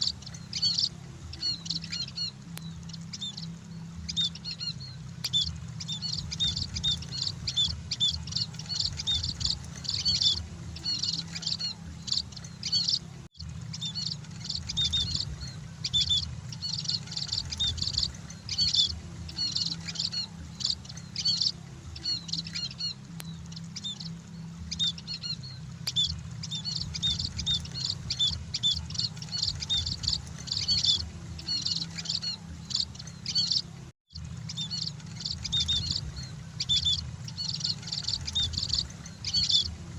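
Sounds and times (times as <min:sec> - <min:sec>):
finches chirping: 0:00.0 - 0:33.8, 0:34.4 - 0:39.8
steady low hum: 0:00.0 - 0:39.9.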